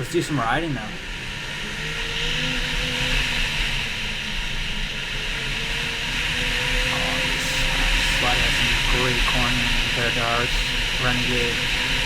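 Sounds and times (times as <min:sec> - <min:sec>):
wind and track hiss: 0:00.0 - 0:12.0
snowmobile engine running: 0:06.8 - 0:11.7.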